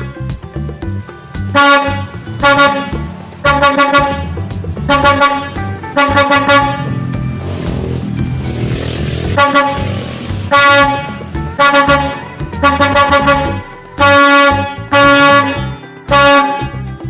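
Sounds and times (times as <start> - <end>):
truck air horn blasts: 1.5 - 7.2, 9.3 - 16.9
low rumbling: 2.1 - 13.7.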